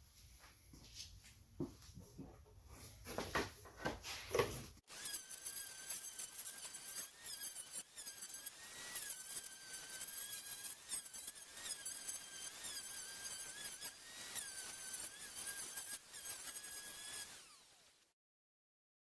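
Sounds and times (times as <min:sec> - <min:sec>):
electric sander whining: 0:04.9 - 0:18.0.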